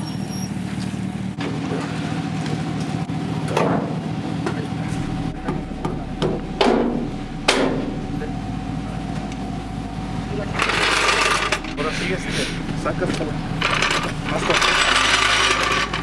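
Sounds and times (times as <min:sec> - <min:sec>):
vehicle engine idling: 0:00.0 - 0:16.0
sharp metal clanks: 0:10.6 - 0:16.0.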